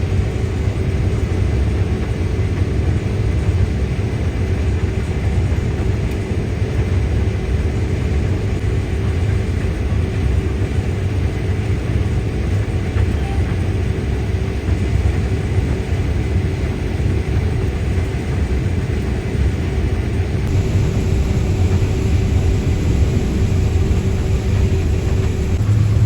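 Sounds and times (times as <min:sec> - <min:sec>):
combine harvester engine drone: 0:20.3 - 0:26.0
machinery hum: 0:20.4 - 0:26.0.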